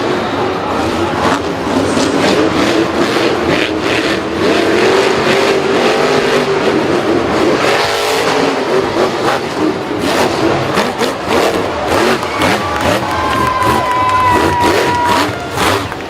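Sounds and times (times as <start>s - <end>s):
racing engine at high revs: 0.0s - 16.0s.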